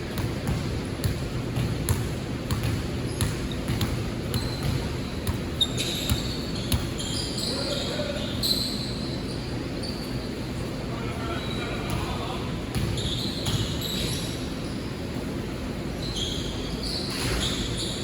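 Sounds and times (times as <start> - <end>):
basketball bouncing on court: 0.0 - 7.2, 11.9 - 14.1
shoe squeaks: 3.0 - 10.4, 12.8 - 14.9, 16.0 - 18.0
murmur of voices: 10.6 - 12.8.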